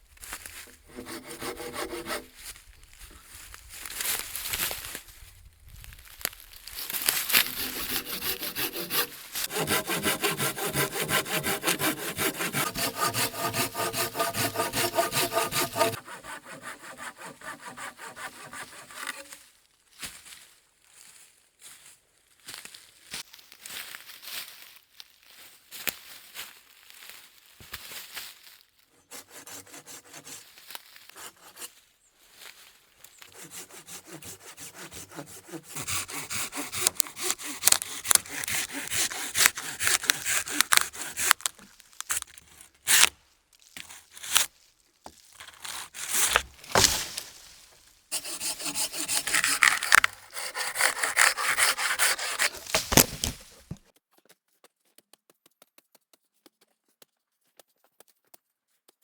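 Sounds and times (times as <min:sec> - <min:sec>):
hand saw cutting wood: 0:00.4 - 0:02.6, 0:06.7 - 0:19.4, 0:29.0 - 0:31.7, 0:33.3 - 0:42.2, 0:45.4 - 0:53.8
sharp knocks: 0:46.3 - 0:47.1.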